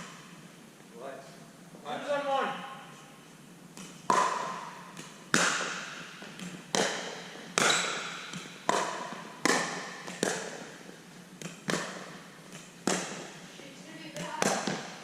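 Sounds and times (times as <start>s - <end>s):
ball bouncing: 3.7s - 13.5s, 14.1s - 15.0s
paddles striking ball: 3.8s - 13.5s, 14.2s - 15.0s.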